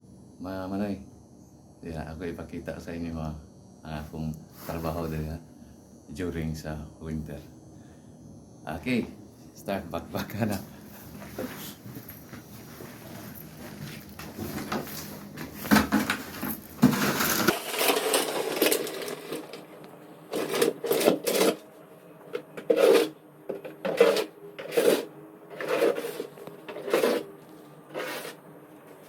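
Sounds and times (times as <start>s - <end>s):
rustling and handling noise: 10.8s - 29.0s
snow shovel scraping pavement: 15.6s - 19.6s, 20.3s - 21.6s, 22.6s - 23.2s, 23.8s - 27.3s, 27.9s - 28.4s.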